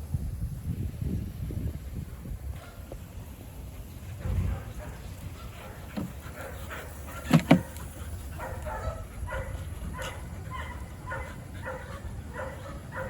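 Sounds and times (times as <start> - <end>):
dog barks: 4.2 - 7.8, 8.4 - 13.0.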